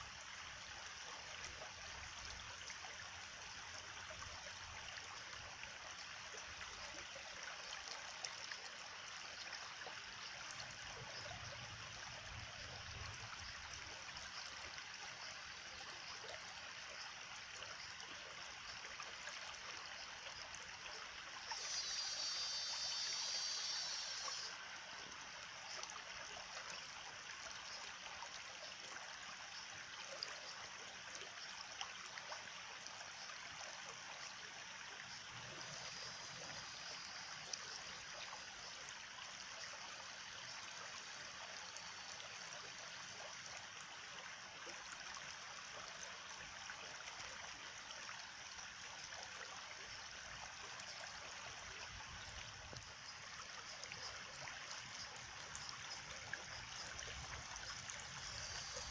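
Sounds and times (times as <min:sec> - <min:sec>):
stream water running: 0:00.0 - 0:58.9
faint ticks: 0:21.5 - 0:24.7.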